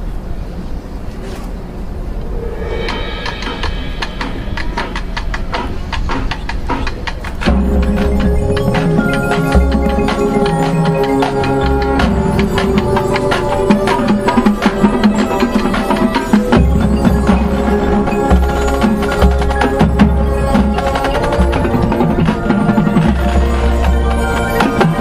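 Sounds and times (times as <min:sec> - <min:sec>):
bass drum swells: 0:01.9 - 0:05.4
percussion strikes: 0:02.1 - 0:25.0
wind and brass chords: 0:07.5 - 0:25.0.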